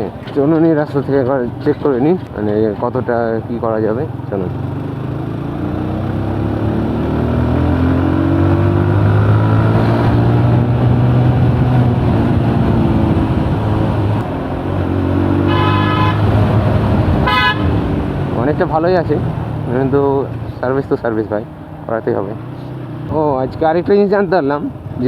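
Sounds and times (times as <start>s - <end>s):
motorcycle engine accelerating: 1.3s - 23.8s
vehicle horn honking: 15.4s - 16.5s, 17.2s - 17.9s.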